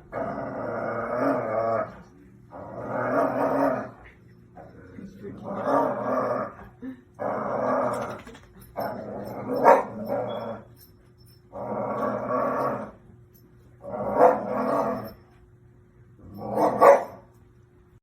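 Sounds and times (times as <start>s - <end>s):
animal growling: 0.0s - 4.0s, 4.6s - 10.7s, 11.5s - 13.0s, 13.8s - 15.2s.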